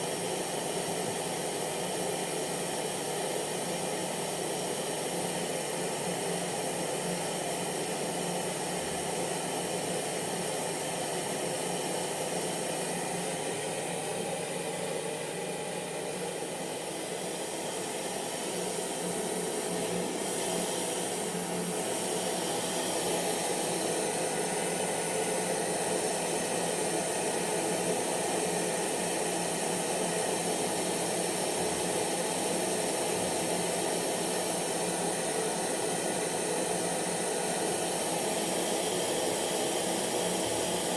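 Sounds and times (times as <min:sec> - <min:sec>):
hair dryer running: 0:00.0 - 0:40.9.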